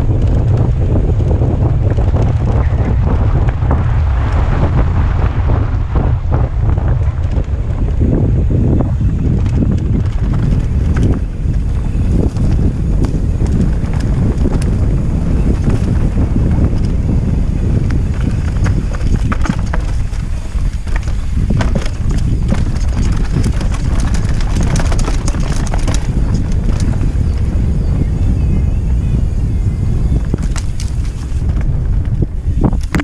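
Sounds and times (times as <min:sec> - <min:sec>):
steady rumble: 0:00.0 - 0:33.0
wind buffeting microphone: 0:00.0 - 0:33.0
mountain bike clattering: 0:07.0 - 0:33.0.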